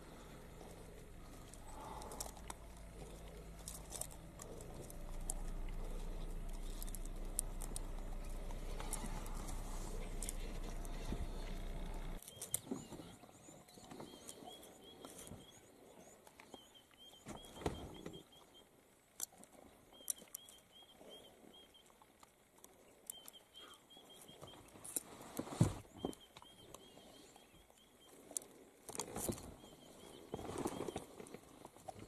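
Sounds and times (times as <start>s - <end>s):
steady low hum: 0.0s - 32.0s
bird chirping: 19.9s - 22.0s.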